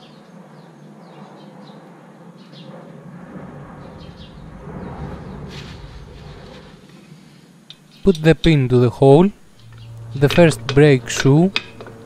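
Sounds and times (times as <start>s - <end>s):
low steady rumble: 3.2s - 6.9s, 8.7s - 12.0s
small birds chirping: 9.5s - 10.2s.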